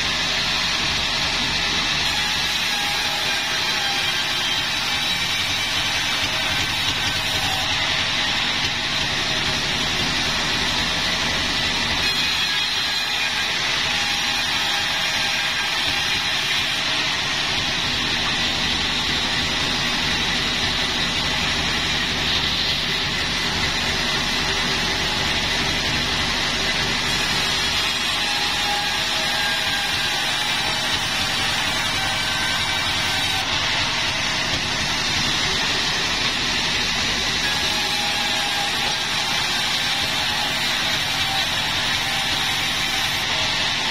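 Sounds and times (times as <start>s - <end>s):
sawmill saw running: 0.0s - 43.9s.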